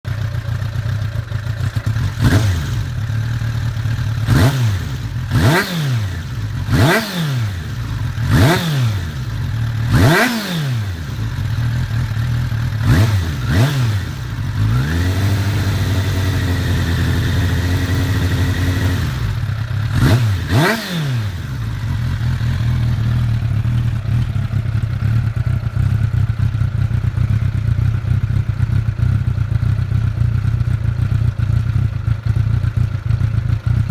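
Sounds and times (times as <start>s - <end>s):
motorcycle engine revving: 0.1s - 33.9s.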